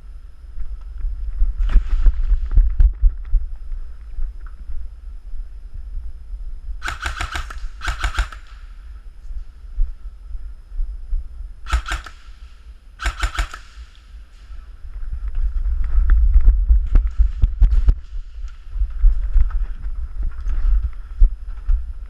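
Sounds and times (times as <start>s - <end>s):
airsoft gun firing bursts: 6.8s - 8.8s, 11.7s - 14.1s.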